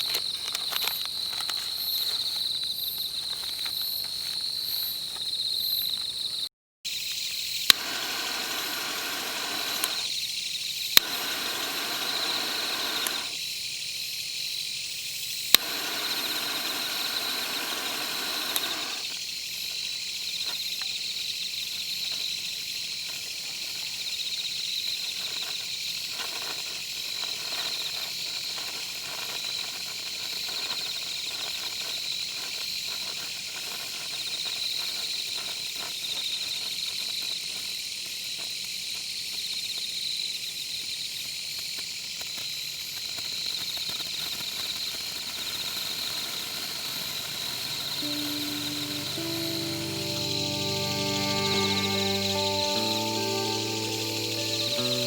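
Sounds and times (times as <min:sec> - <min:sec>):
crickets and insects chirping: 0:00.0 - 0:55.0
hiss: 0:06.9 - 0:55.0
sharp clicks: 0:11.0 - 0:13.4, 0:15.5 - 0:19.2.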